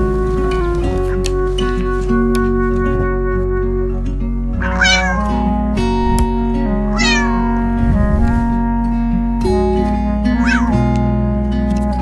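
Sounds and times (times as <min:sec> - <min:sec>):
acoustic guitar chords: 0:00.0 - 0:12.0
cat meowing: 0:04.6 - 0:05.5, 0:06.9 - 0:07.7, 0:10.4 - 0:10.8.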